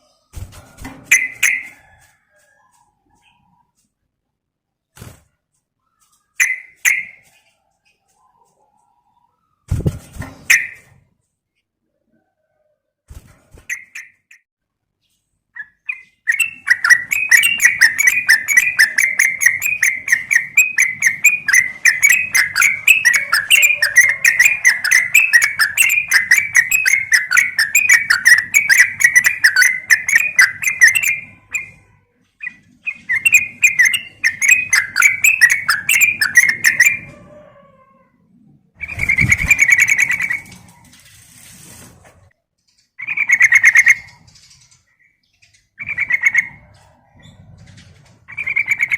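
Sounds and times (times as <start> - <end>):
bulbul chattering call: 16.0 - 31.8, 32.4 - 37.0.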